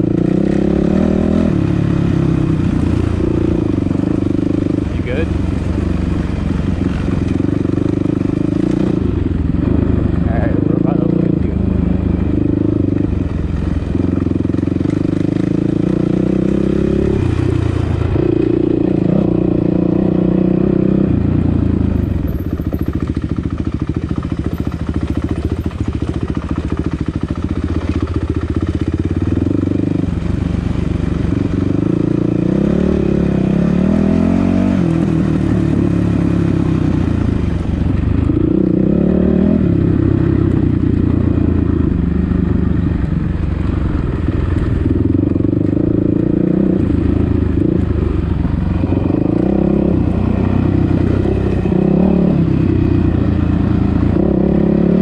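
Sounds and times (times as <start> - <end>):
dirt bike engine revving: 0.0 - 11.6, 14.0 - 21.1, 31.3 - 37.6, 48.7 - 55.0.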